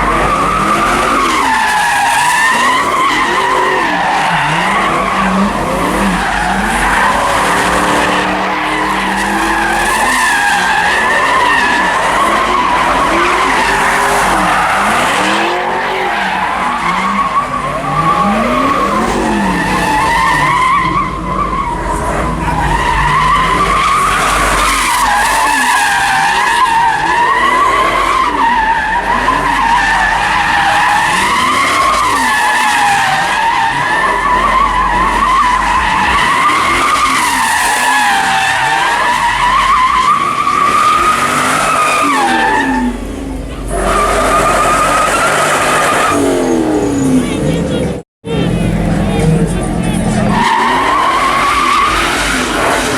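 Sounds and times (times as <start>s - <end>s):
car engines revving: 0.0s - 52.9s
car tyres squealing: 0.0s - 52.9s.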